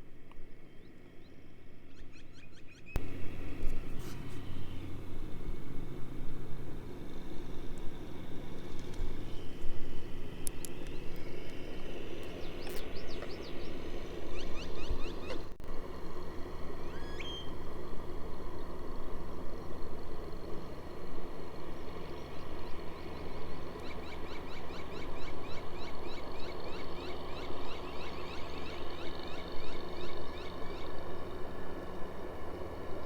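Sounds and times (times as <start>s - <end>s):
small birds chirping: 7.2s - 15.5s, 16.7s - 33.0s
whistled bird note: 16.8s - 17.6s.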